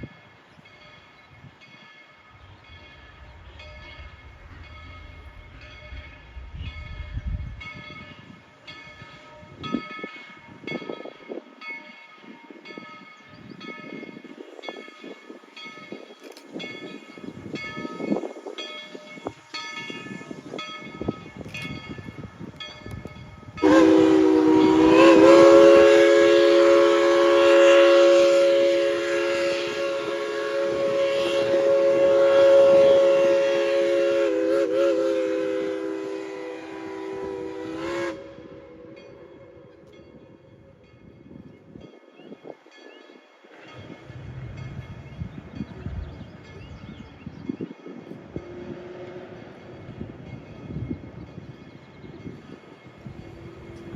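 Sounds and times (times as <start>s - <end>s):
steam locomotive bell ringing: 0.0s - 53.9s
chime steam whistle blast: 13.5s - 40.9s.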